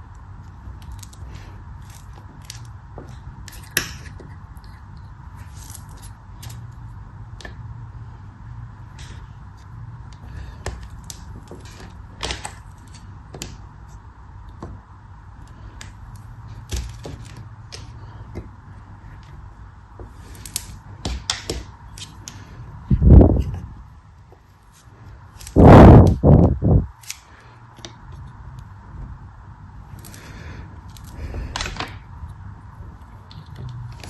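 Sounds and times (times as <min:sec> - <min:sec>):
cutting soap snaps and crackles: 0:00.1 - 0:05.8, 0:09.1 - 0:13.6, 0:20.2 - 0:22.5, 0:27.0 - 0:28.7.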